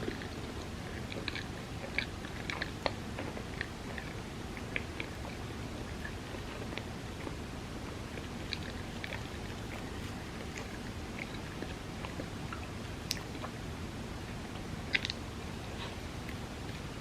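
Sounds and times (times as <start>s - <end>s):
small mouth clicks: 0.0s - 7.4s, 14.9s - 15.2s
wet chewing sounds: 0.0s - 13.7s, 14.3s - 17.0s.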